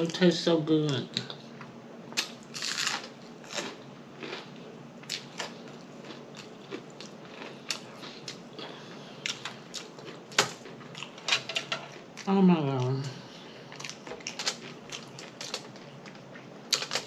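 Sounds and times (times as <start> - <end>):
person chewing with lip smacking: 3.5 - 11.2.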